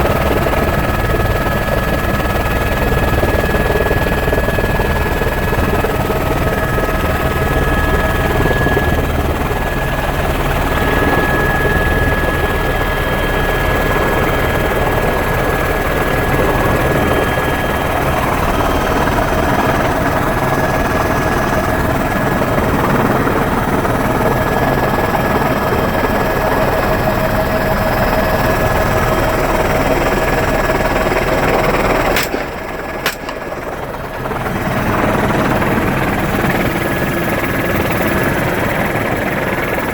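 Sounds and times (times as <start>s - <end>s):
helicopter rotor and engine: 0.0s - 39.9s
steady whine: 31.0s - 34.9s
sharp clicks: 32.1s - 33.8s.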